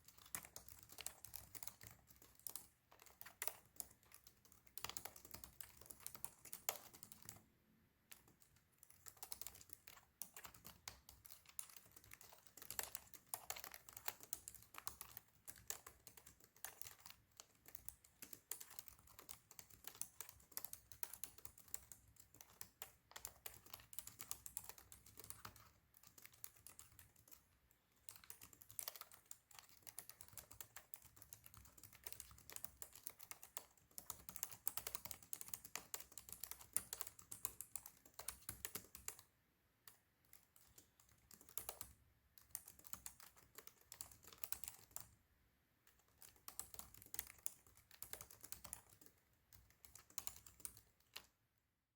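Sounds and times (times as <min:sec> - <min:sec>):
laptop keyboard typing: 0:00.0 - 0:51.5.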